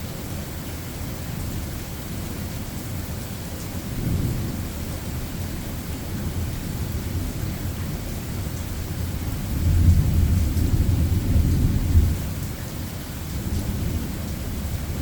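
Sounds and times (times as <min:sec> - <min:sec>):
steady rain: 0:00.0 - 0:15.0
thunder rumbling: 0:09.4 - 0:12.4.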